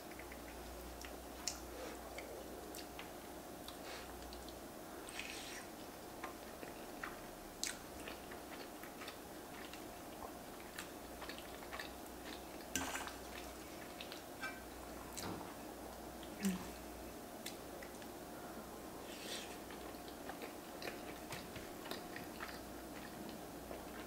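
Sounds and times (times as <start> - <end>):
wet chewing mouth sounds: 0.0 - 14.3, 19.5 - 24.0
faint steady hum: 0.0 - 24.0.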